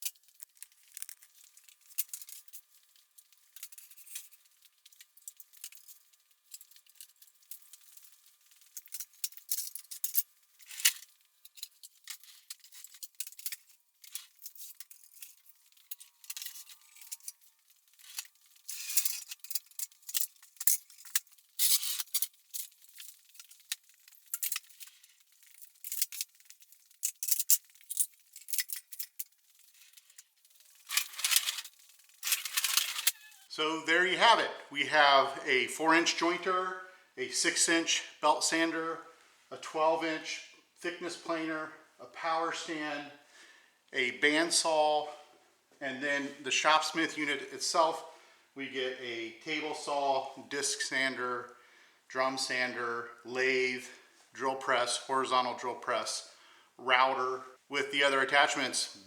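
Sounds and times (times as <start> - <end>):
tools and metal parts clinking: 0.0 - 33.5.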